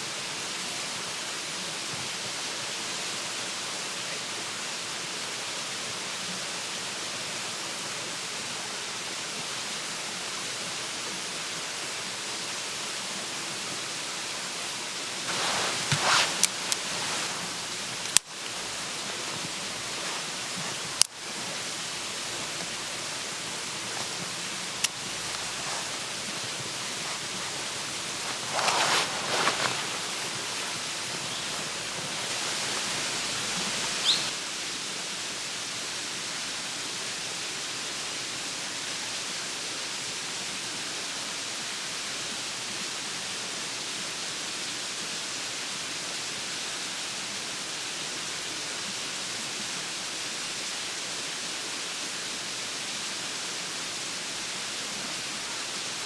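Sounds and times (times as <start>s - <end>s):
flowing water rushing: 0.0s - 34.4s
rustling noise: 15.1s - 34.3s.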